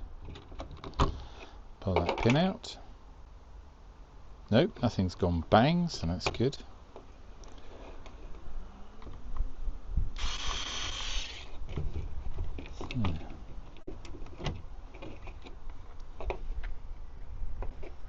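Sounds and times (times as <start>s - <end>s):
rasping burst: 10.2s - 11.5s.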